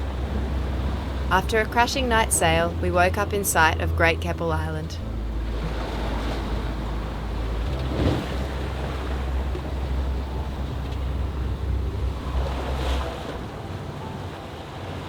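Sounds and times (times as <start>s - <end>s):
heavy low rumble: 0.0s - 14.4s
water sloshing along hull: 0.0s - 15.0s
wind buffeting microphone: 3.9s - 15.0s.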